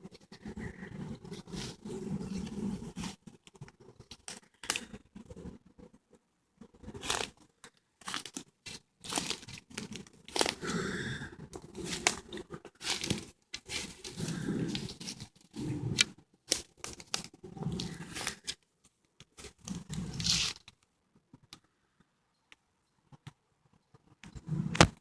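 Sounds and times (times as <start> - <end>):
footsteps crunching on dry leaves: 12.8 - 15.2.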